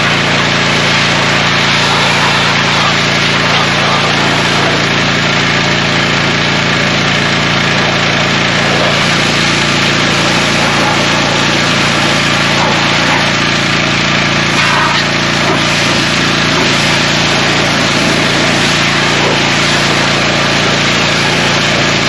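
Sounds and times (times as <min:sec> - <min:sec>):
small engine running at high speed: 0:00.0 - 0:22.0
loud rushing hiss: 0:00.6 - 0:05.2.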